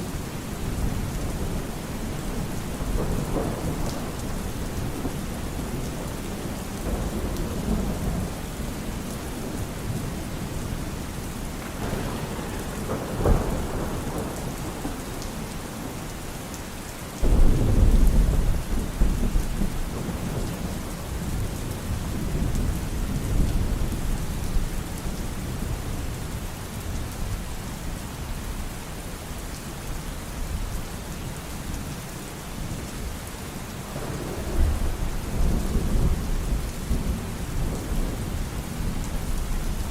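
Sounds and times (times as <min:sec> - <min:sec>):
steady rain falling: 0:00.0 - 0:39.9
rumble of thunder: 0:00.1 - 0:16.6, 0:17.2 - 0:27.6, 0:33.9 - 0:39.9
sharp thunderclap: 0:02.3 - 0:06.0, 0:11.5 - 0:16.0, 0:17.2 - 0:23.8, 0:34.0 - 0:39.3.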